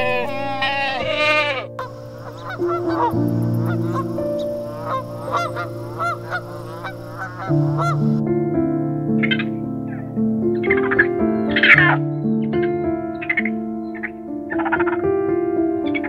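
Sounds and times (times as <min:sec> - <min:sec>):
goat bleating: 0:00.0 - 0:01.8
geese honking: 0:00.0 - 0:08.2
piano music: 0:00.0 - 0:16.0.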